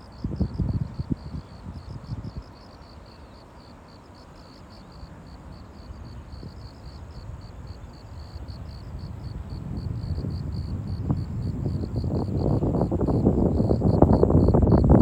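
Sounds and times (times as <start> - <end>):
wind rumble on microphone: 0.0 - 2.6, 5.4 - 15.0
insects chirping: 0.0 - 15.0.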